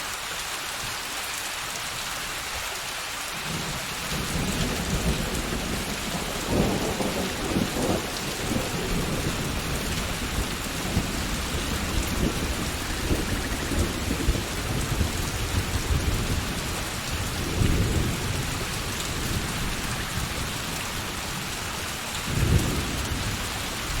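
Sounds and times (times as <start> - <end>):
rain splashing on hard surfaces: 0.0 - 24.0
thunder rolling: 4.1 - 21.0.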